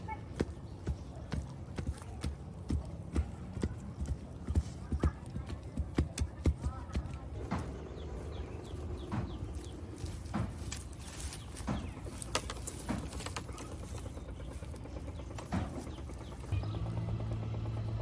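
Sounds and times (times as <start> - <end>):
low steady rumble: 0.0 - 18.0
sharp knocks: 9.0 - 9.6, 11.6 - 13.5, 15.4 - 16.0.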